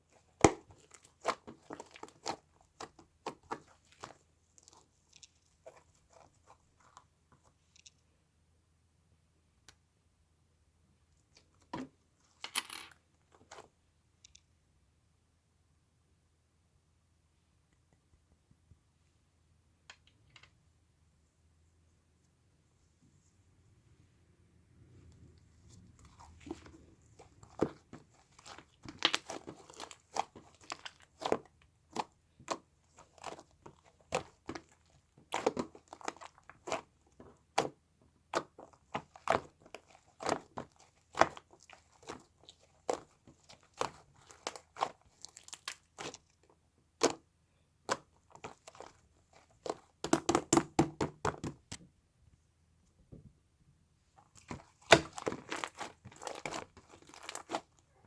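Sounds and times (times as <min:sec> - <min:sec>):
crinkly material crackling: 0:25.3 - 0:47.2, 0:54.1 - 0:58.0.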